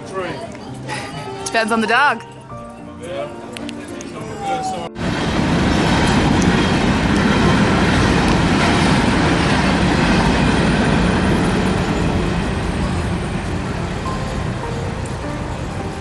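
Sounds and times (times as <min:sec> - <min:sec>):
freight train rumbling past: 0:04.2 - 0:16.0.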